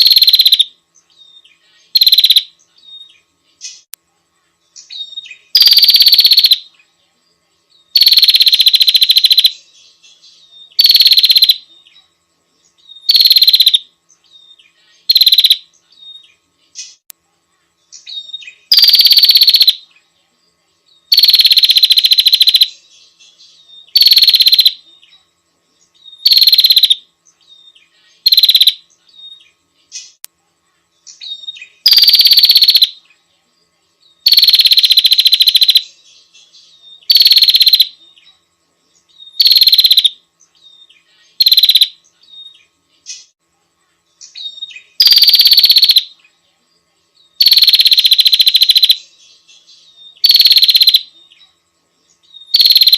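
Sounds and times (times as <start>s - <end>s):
bird trilled calls: 0.0s - 0.7s, 1.3s - 3.9s, 4.8s - 6.7s, 7.9s - 11.9s, 12.8s - 17.0s, 18.0s - 19.8s, 21.1s - 24.8s, 26.0s - 27.0s, 27.6s - 30.2s, 31.1s - 33.0s, 34.2s - 38.0s, 39.2s - 43.3s, 44.2s - 46.2s, 47.4s - 51.1s, 52.3s - 52.9s.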